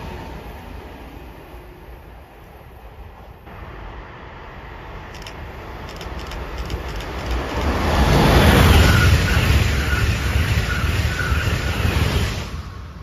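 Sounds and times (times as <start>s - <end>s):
high-speed train passing: 0.0s - 13.0s
high ringing from wheels: 5.2s - 10.0s.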